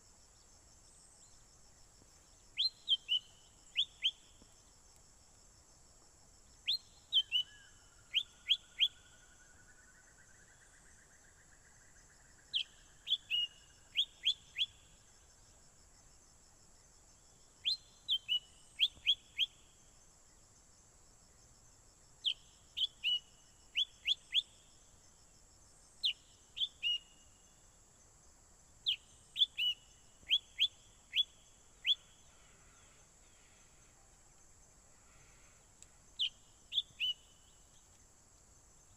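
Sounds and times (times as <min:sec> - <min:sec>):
songbird whistled notes: 0:02.6 - 0:04.2, 0:06.7 - 0:09.2, 0:12.5 - 0:14.8, 0:17.6 - 0:19.5, 0:22.3 - 0:24.5, 0:26.0 - 0:27.2, 0:28.9 - 0:32.0, 0:36.2 - 0:37.5.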